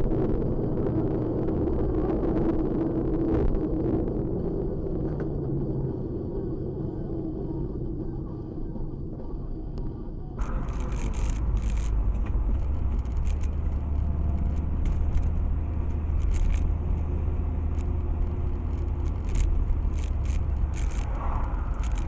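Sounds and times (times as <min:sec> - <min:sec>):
car engine and road rumble: 0:00.0 - 0:22.0
short clicks and rattles: 0:10.4 - 0:16.7, 0:18.6 - 0:22.0.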